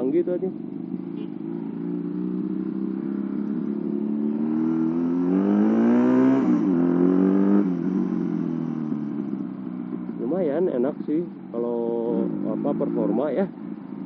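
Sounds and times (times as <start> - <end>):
moped engine accelerating: 0.0 - 14.0.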